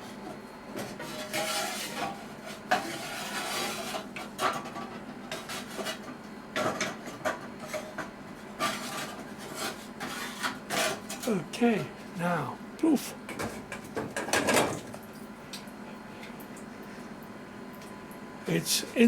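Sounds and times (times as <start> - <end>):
faint steady hum: 9.6 - 19.0.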